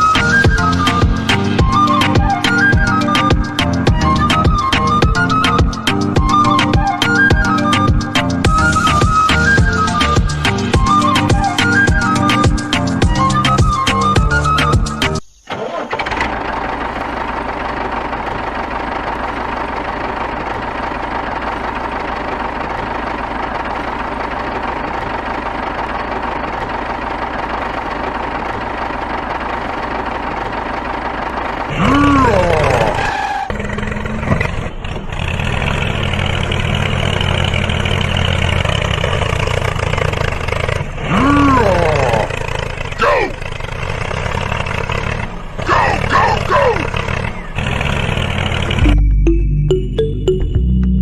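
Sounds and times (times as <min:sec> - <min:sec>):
small engine running: 0:15.8 - 0:48.9
engine revving with pitch sweeps: 0:31.7 - 0:51.0.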